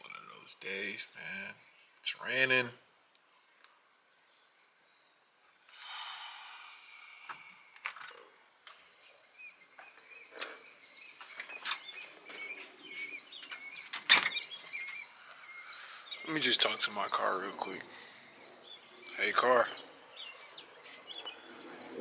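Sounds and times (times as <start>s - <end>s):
small songbird chirping: 6.4s - 22.0s.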